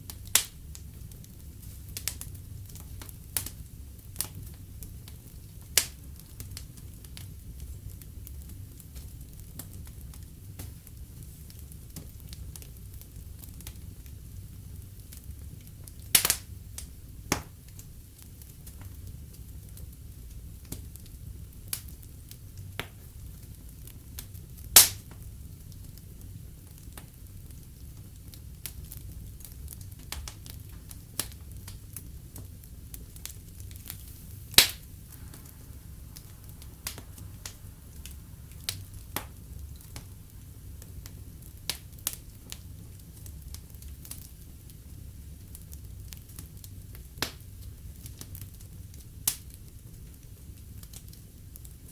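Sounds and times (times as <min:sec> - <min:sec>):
fire low rumble: 0:00.0 - 0:51.9
wood fire crackling: 0:00.0 - 0:51.9
loud fire pops: 0:14.8 - 0:19.7, 0:21.6 - 0:49.7.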